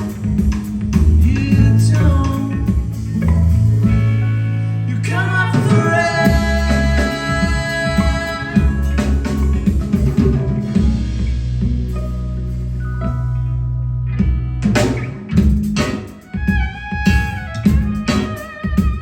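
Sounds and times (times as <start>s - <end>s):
bass guitar: 0.0s - 19.0s
drum kit: 0.0s - 19.0s
electric guitars: 0.0s - 19.0s
person singing: 1.2s - 4.1s, 4.7s - 10.2s.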